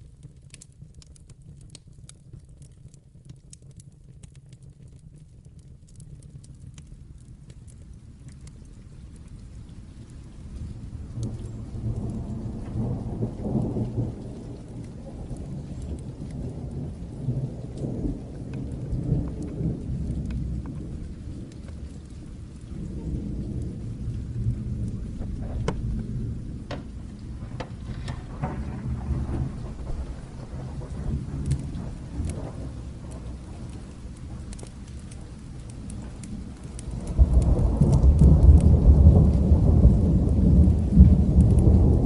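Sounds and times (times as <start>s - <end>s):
sharp crackles: 0.0s - 42.0s
steady rain: 0.0s - 42.0s
rolling thunder rumble: 8.8s - 42.0s.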